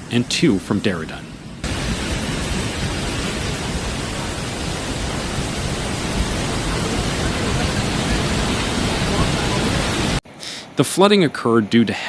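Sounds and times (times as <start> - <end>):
river water roaring: 0.0 - 11.6.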